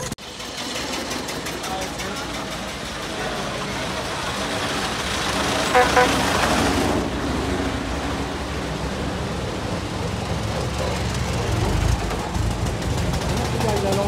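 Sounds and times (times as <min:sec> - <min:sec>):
old car engines driving past: 0:00.0 - 0:14.0
car horn honks: 0:05.7 - 0:06.6.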